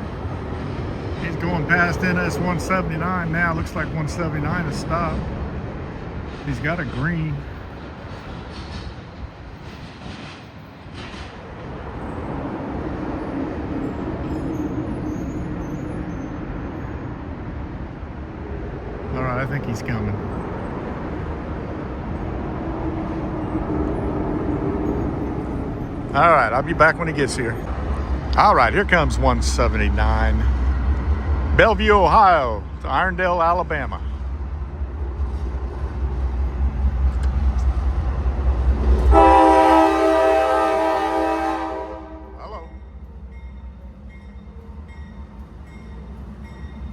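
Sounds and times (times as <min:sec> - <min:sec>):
freight train rumble: 0:00.0 - 0:46.9
locomotive air horn: 0:39.0 - 0:42.7.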